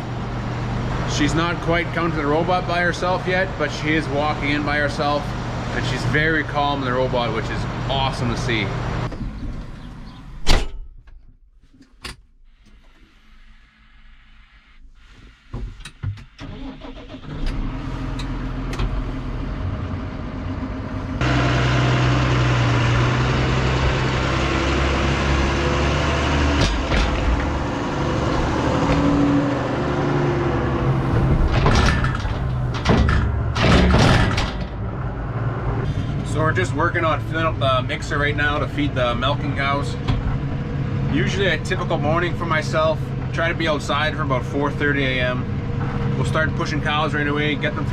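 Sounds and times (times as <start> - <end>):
farm machine engine running: 19.1 - 34.0.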